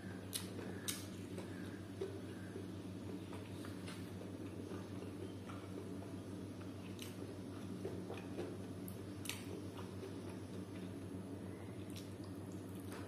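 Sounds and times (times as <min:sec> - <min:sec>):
steady low hum: 0:00.0 - 0:13.0
chewing: 0:06.6 - 0:11.0, 0:11.8 - 0:13.0
wet mouth clicks and smacks: 0:11.9 - 0:12.6.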